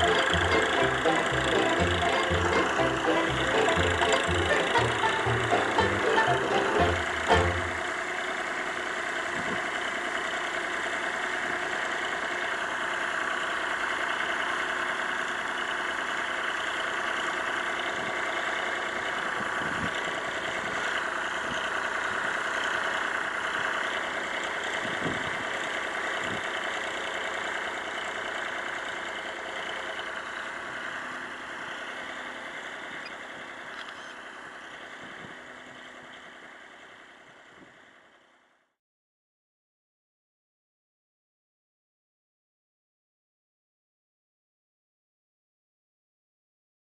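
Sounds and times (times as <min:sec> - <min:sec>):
tractor engine running: 0:00.0 - 0:38.5.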